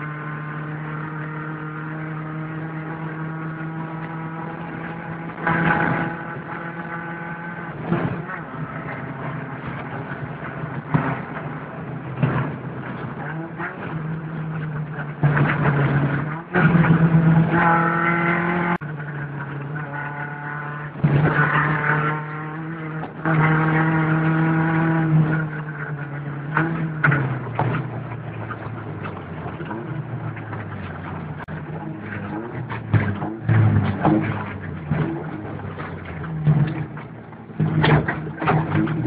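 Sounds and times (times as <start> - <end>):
car engine pulling hard: 0.0 - 39.0
knocks and rattles: 4.7 - 18.8, 26.5 - 39.0.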